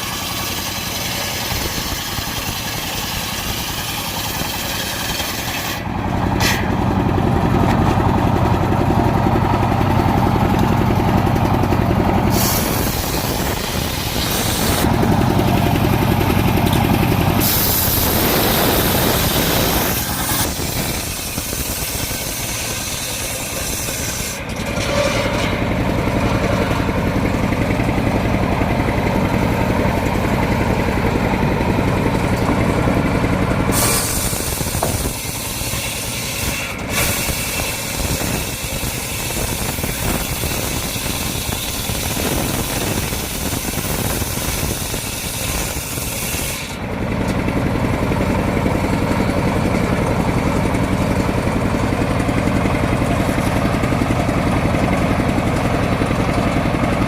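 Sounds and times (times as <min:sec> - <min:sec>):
sawmill engine running: 0:00.0 - 0:57.0
loud hissing rush: 0:12.1 - 0:24.4, 0:33.3 - 0:46.8.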